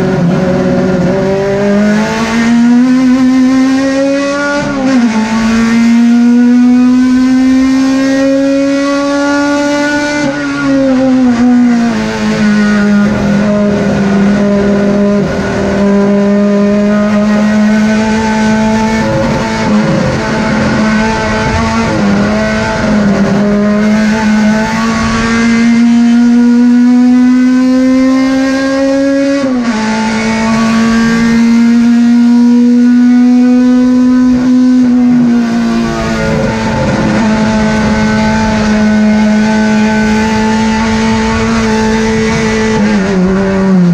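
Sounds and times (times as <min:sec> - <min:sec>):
race car engine running hard: 0:00.0 - 0:43.9.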